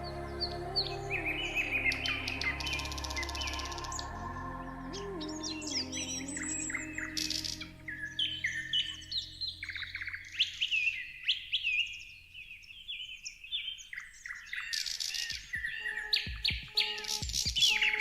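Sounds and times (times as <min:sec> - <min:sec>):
small birds chirping: 0:00.0 - 0:18.0
dull low thumps: 0:15.3 - 0:17.9.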